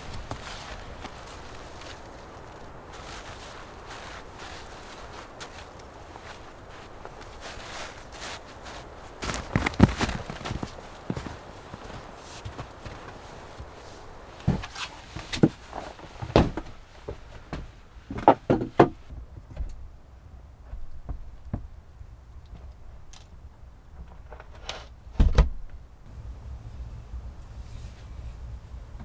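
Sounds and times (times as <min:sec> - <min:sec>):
knocks and thumps: 0:08.7 - 0:12.7.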